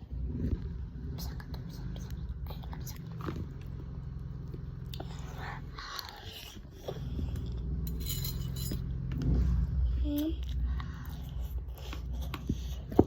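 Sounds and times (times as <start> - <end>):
person chewing food: 1.4 - 7.8, 10.4 - 13.0.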